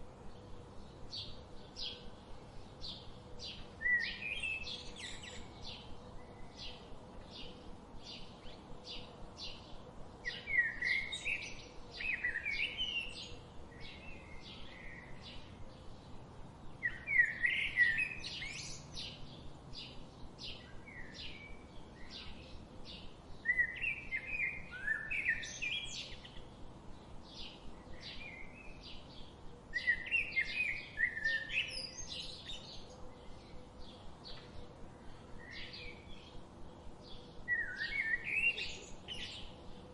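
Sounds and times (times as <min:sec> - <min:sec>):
birds chirping: 0:00.3 - 0:39.9
bird warbling song: 0:00.8 - 0:39.9.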